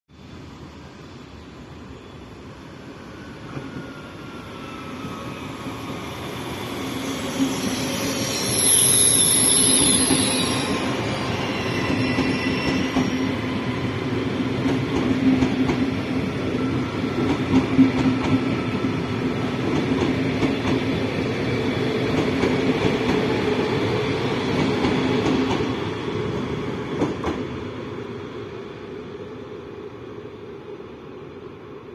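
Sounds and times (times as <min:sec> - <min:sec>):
electric train passing at speed: 0:00.1 - 0:31.9
high whine and hiss of train: 0:00.1 - 0:31.9.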